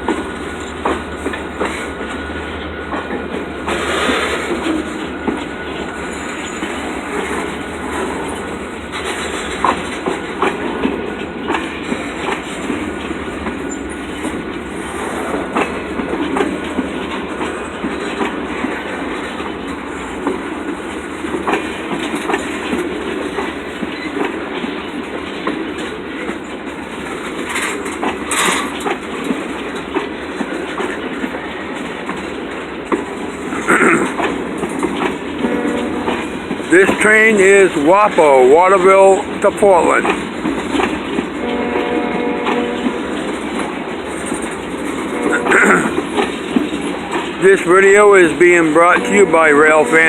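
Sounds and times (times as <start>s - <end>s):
train wheels clicking over rail joints: 0.0s - 50.0s
train wheel squeals: 3.7s - 10.6s, 11.5s - 19.6s, 23.8s - 25.1s.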